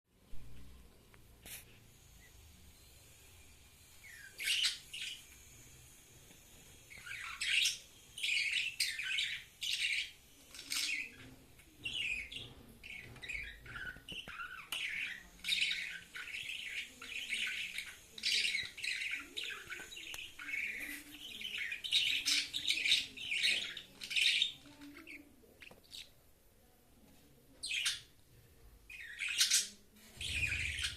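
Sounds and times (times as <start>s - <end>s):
budgerigar chirping: 29.0s - 30.9s.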